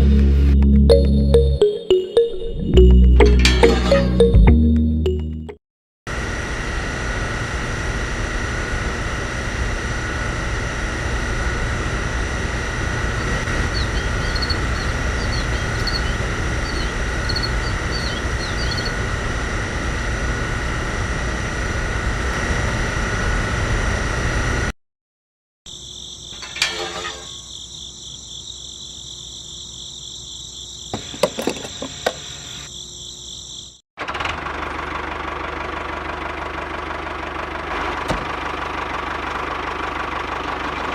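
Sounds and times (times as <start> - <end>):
small motor whining: 12.3 - 20.0, 31.0 - 32.7.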